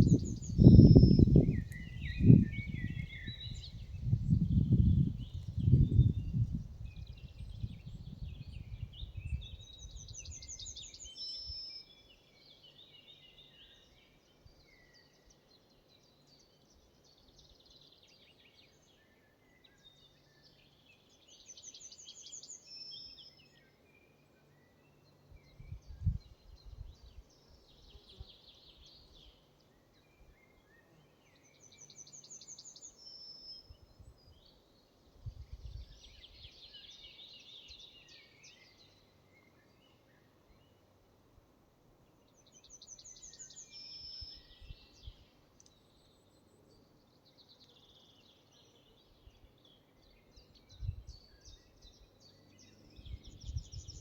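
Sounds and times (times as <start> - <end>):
songbird trilling: 0.0 - 3.9
wind rumble on microphone: 0.0 - 10.7, 25.3 - 27.2, 35.2 - 36.5, 50.6 - 51.6, 53.0 - 54.0.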